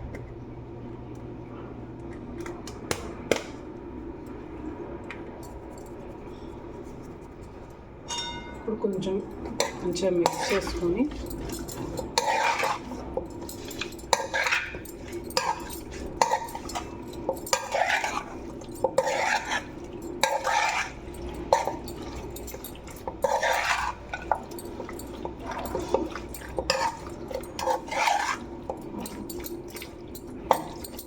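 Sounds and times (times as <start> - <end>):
wet swishing of mixing: 9.4 - 31.0.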